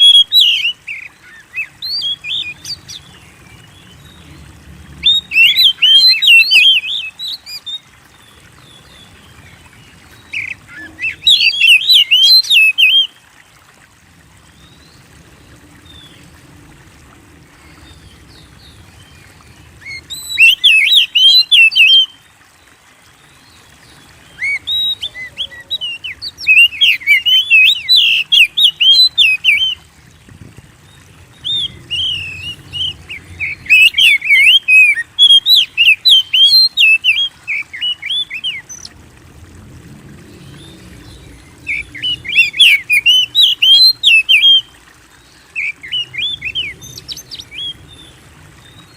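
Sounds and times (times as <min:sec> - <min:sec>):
bird whistling song: 0:00.0 - 0:03.0, 0:05.0 - 0:07.8, 0:10.3 - 0:13.1, 0:19.8 - 0:22.2, 0:24.3 - 0:29.8, 0:31.3 - 0:38.9, 0:41.6 - 0:44.7.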